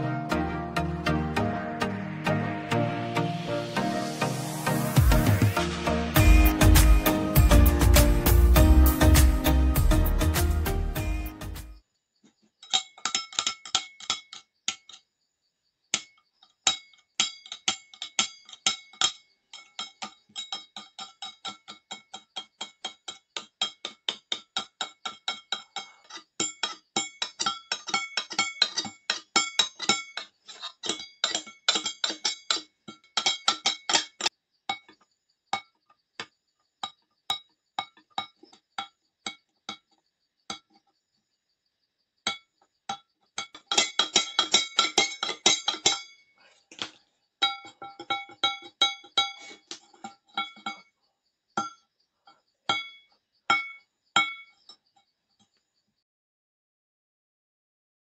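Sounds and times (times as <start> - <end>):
metal blade scraping a steel cup: 16.7 - 23.9, 24.6 - 34.8, 43.4 - 46.4.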